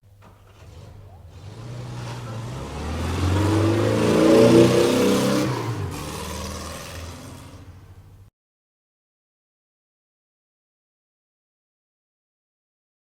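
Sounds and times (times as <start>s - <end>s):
car engine revving: 0.2s - 8.3s.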